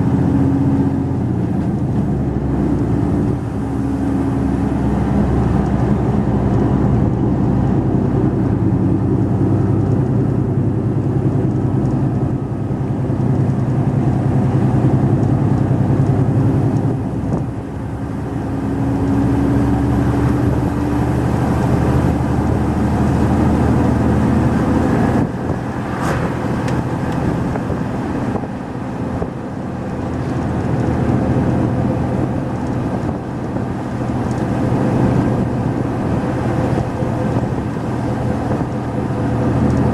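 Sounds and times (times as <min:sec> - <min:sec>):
lorry engine running: 0:00.0 - 0:39.9
brief sharp sound: 0:25.8 - 0:26.6.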